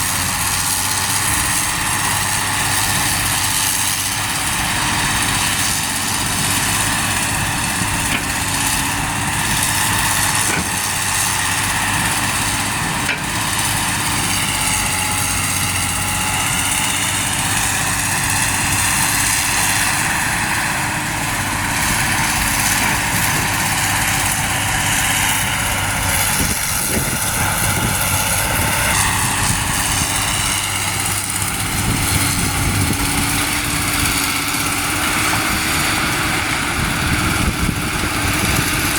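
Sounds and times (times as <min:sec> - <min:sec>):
diesel truck engines idling: 0:00.0 - 0:38.9.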